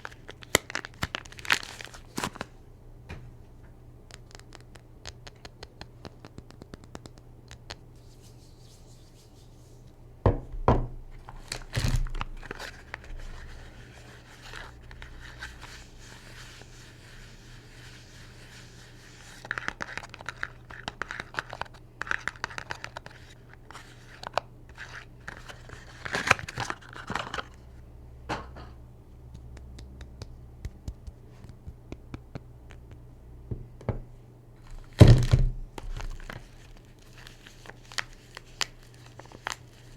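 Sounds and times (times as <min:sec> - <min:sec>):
wrapping crinkling and tearing: 0:00.0 - 0:02.6, 0:11.2 - 0:16.8, 0:34.6 - 0:39.9.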